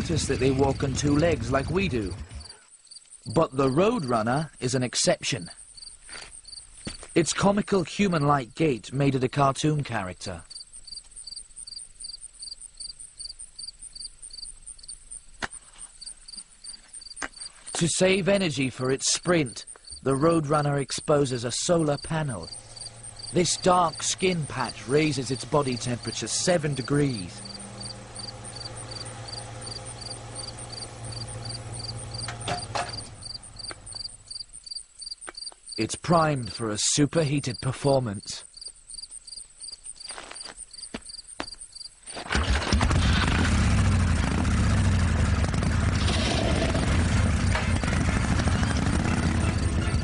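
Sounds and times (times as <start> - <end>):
insect chirping: 2.4 - 7.3, 10.4 - 36.7, 37.4 - 42.2
low steady hum: 18.2 - 34.6
very high trill: 21.1 - 34.4.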